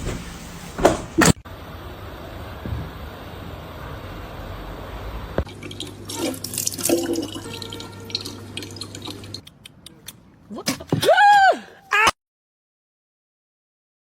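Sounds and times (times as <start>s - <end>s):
running water hissing: 5.5s - 9.4s.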